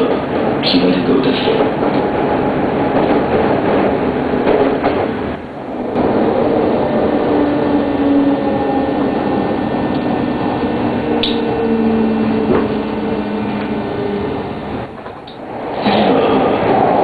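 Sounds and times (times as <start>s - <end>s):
train car rumble: 0.0s - 17.0s
level humming tones: 5.2s - 17.0s.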